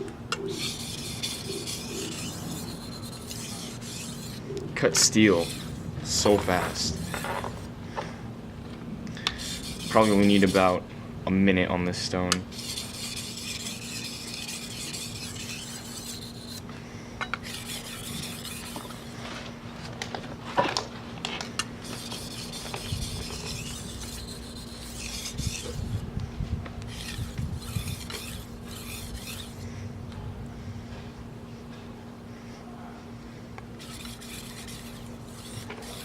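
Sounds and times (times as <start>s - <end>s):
knife scraping on whetstone: 0.4s - 7.7s, 9.2s - 10.8s, 12.5s - 16.7s, 17.4s - 19.2s, 21.8s - 26.0s, 26.9s - 29.6s, 33.8s - 36.0s.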